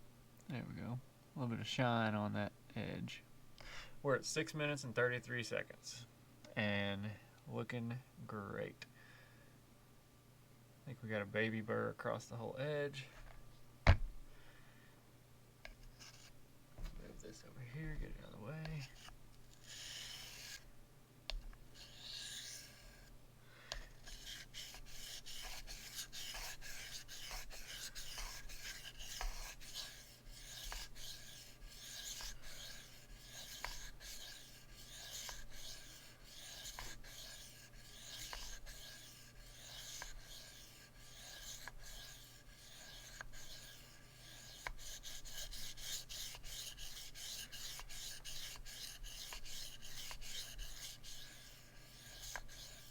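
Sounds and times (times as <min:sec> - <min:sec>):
knife scraping on sharpening stone: 0:18.8 - 0:20.6, 0:24.1 - 0:52.9.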